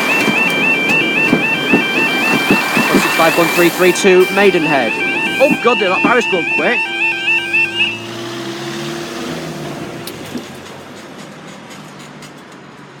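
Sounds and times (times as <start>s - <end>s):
level crossing warbling alarm: 0.0s - 8.4s
diesel train passing: 0.0s - 13.0s.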